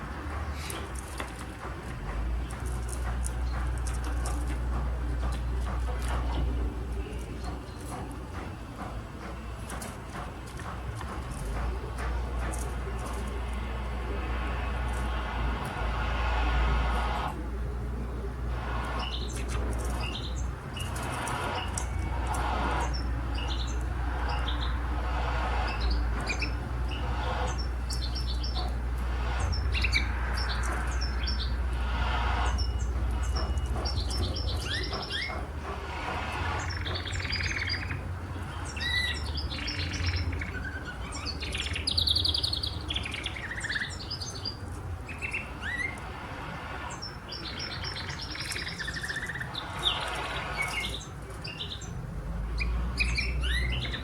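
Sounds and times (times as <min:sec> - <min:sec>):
canary singing: 0:18.7 - 0:46.2, 0:46.8 - 0:54.0.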